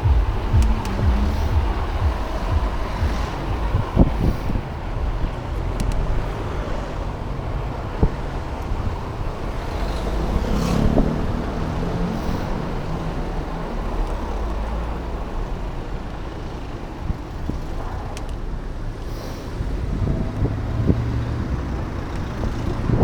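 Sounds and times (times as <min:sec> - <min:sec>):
low hum: 0:00.0 - 0:05.6
wind on microphone: 0:00.0 - 0:13.8, 0:19.6 - 0:23.0
road rumble: 0:00.0 - 0:23.0
traffic noise: 0:00.0 - 0:23.0.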